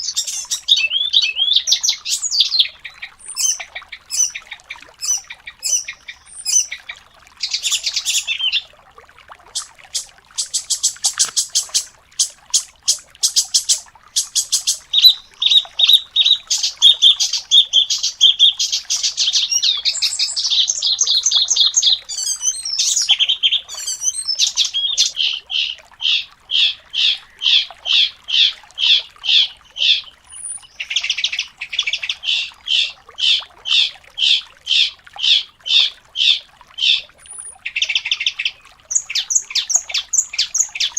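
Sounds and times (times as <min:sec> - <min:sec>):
songbird singing: 0:00.0 - 0:08.7, 0:09.5 - 0:27.4.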